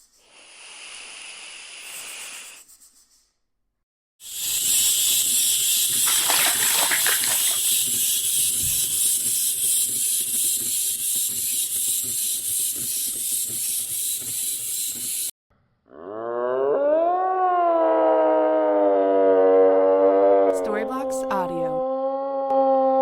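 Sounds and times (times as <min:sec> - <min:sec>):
high-pitched hissing rattle: 0:00.0 - 0:03.1, 0:04.2 - 0:15.3.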